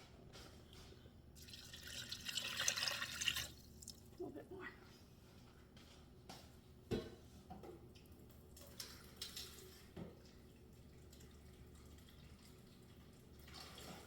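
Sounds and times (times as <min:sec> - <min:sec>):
water splashing into pot: 0:01.4 - 0:04.0.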